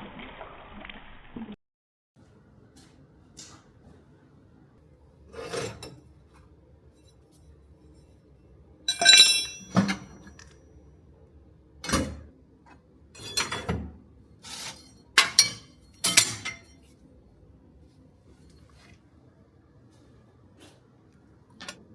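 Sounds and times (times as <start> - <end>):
small metal pieces clinking: 8.9 - 9.7.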